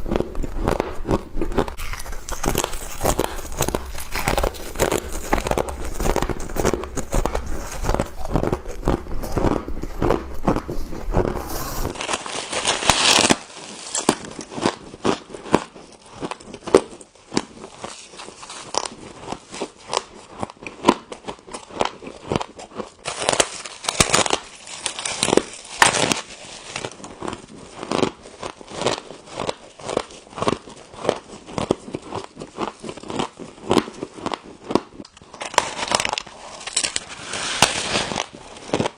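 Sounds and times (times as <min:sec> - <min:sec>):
low hum: 0:00.0 - 0:12.0
frost being chewed: 0:00.0 - 0:37.1, 0:38.1 - 0:38.9.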